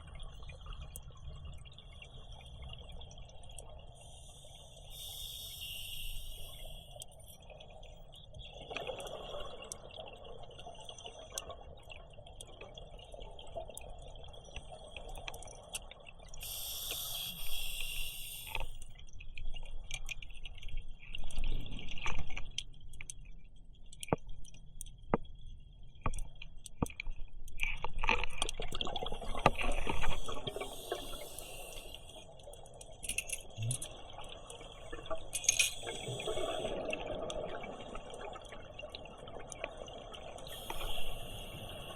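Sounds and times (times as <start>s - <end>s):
regulator air hissing: 4.9s - 6.9s, 16.4s - 18.8s, 30.0s - 32.2s, 40.5s - 41.9s
exhaled air bubbling: 28.4s - 41.9s.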